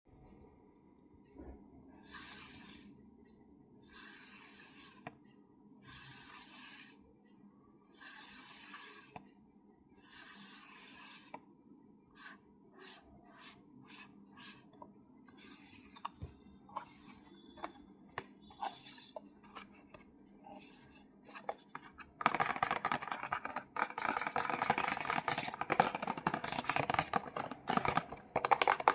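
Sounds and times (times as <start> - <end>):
scratching on hard object: 8.0 - 9.2, 10.0 - 11.4, 15.3 - 28.9.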